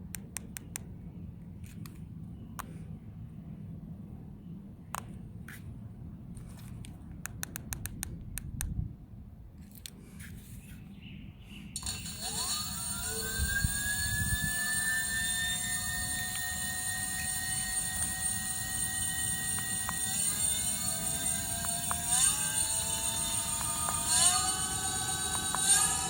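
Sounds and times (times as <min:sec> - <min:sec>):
electric motor whine: 0:11.8 - 0:26.0.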